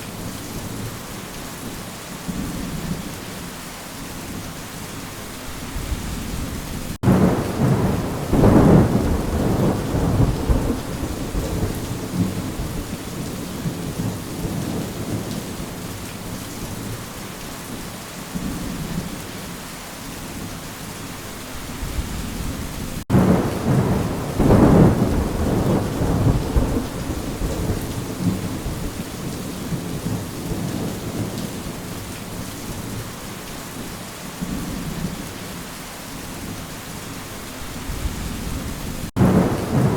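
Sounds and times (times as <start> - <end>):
steady rain: 0.0 - 39.9
rolling thunder: 5.8 - 15.8, 21.8 - 31.8, 37.9 - 39.9.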